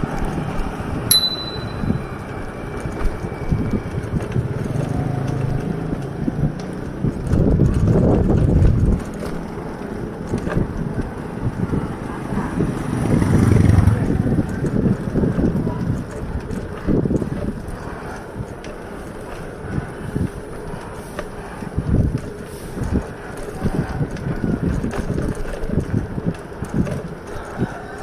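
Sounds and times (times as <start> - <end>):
bicycle road noise: 0.0 - 28.0
wind rushing over microphone: 0.0 - 28.0
vehicle engine passing: 11.7 - 14.5.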